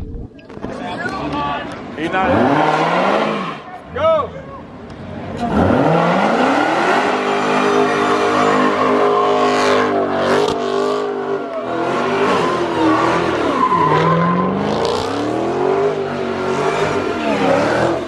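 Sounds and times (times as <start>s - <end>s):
tires squealing: 0.8s - 4.6s, 5.2s - 18.0s
car engine revving hard: 2.0s - 3.7s, 5.4s - 18.0s.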